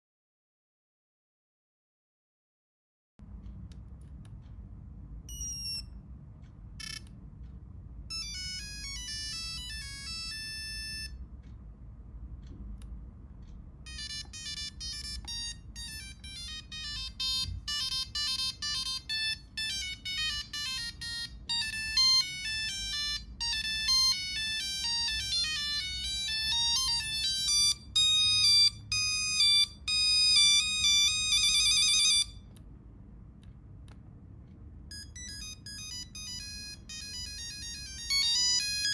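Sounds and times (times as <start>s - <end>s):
phone ringtone beeping melody: 5.3s - 6.0s, 6.8s - 7.1s, 8.1s - 11.2s, 13.8s - 32.5s, 34.9s - 38.9s.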